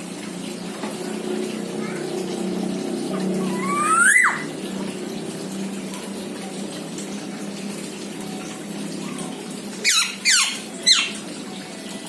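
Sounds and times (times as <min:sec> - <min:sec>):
bird giving harsh calls: 0:03.4 - 0:04.5, 0:09.8 - 0:11.2.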